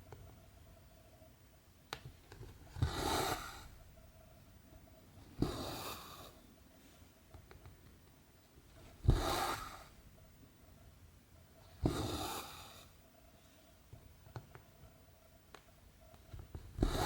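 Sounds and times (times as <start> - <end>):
thread rasping through canvas: 8.8 - 10.0, 16.3 - 17.0.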